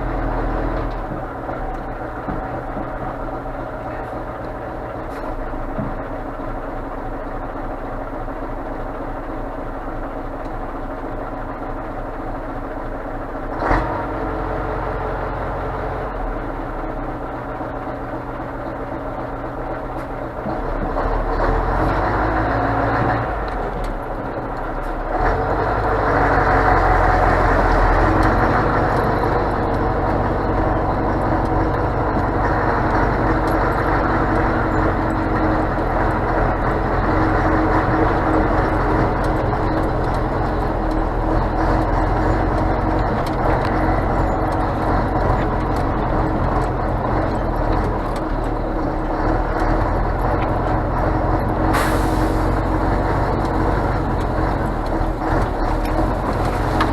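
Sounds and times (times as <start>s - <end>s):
road noise: 0.0s - 56.9s
truck diesel engine driving: 0.0s - 56.9s.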